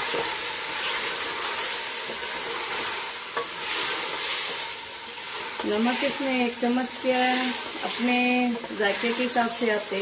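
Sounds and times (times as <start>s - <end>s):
wooden spoon scraping a pot: 0.0s - 6.4s
food sizzling in hot oil: 0.0s - 10.0s.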